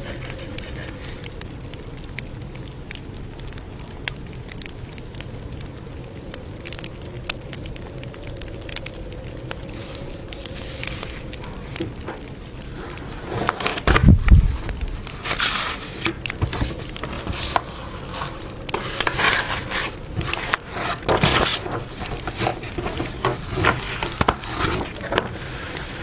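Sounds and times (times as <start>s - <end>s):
campfire crackling: 0.3s - 13.4s, 25.0s - 26.0s.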